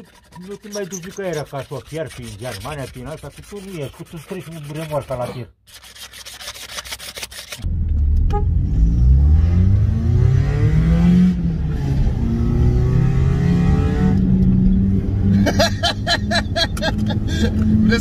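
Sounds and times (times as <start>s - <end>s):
rhythmic scraping: 0.0s - 7.6s
car engine accelerating: 7.7s - 15.6s.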